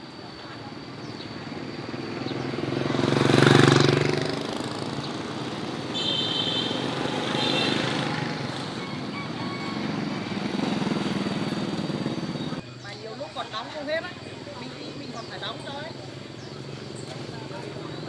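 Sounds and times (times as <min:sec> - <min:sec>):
motorcycle passing: 0:00.4 - 0:12.6, 0:13.6 - 0:18.0.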